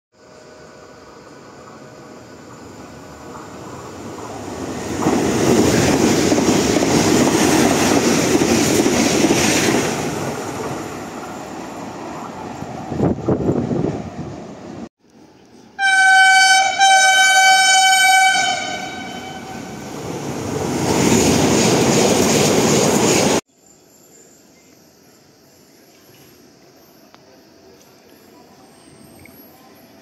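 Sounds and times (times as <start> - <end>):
train running rumble: 1.5 - 14.9
train horn blasts: 15.8 - 19.9.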